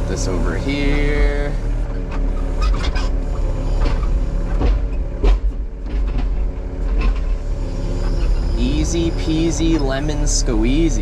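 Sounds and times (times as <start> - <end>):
excavator diesel engine running: 0.0 - 11.0
metal clanks and knocks: 1.9 - 7.4.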